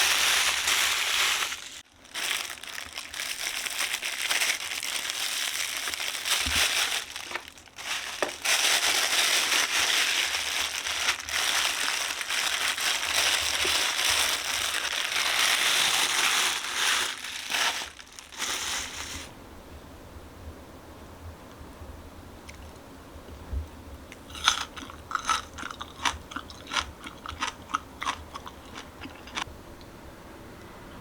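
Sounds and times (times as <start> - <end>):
plastic packaging crinkling: 0.0 - 19.3.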